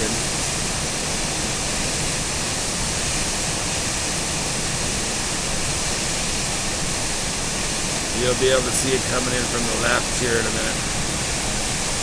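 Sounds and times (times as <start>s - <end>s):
river rushing over waterfall: 0.0s - 12.0s.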